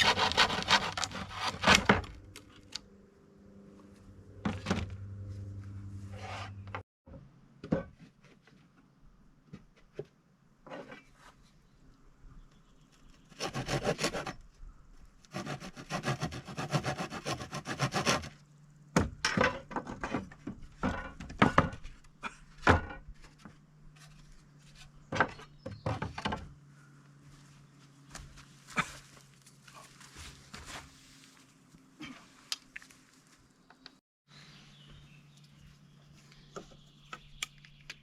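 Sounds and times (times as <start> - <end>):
hand tool scraping wood: 0.0 - 2.0, 13.3 - 14.4, 15.3 - 18.4.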